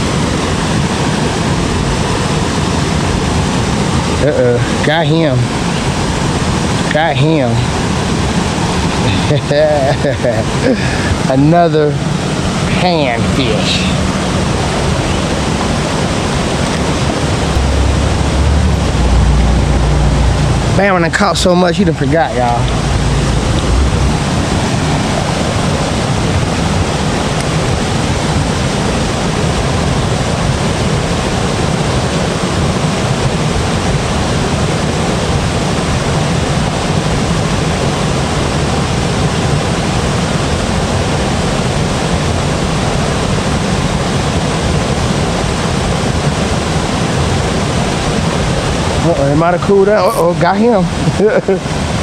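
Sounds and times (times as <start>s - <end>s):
loud steady rushing noise: 0.0s - 52.0s.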